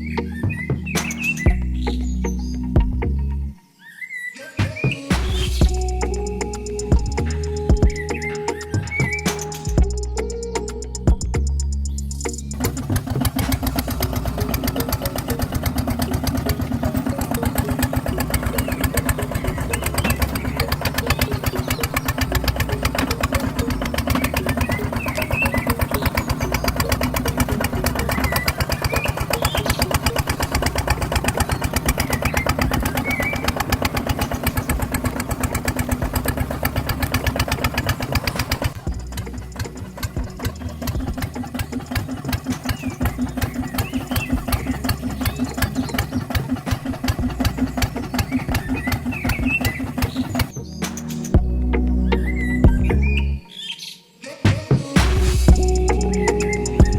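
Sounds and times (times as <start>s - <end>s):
small toy motor chugging: 12.6s - 50.6s.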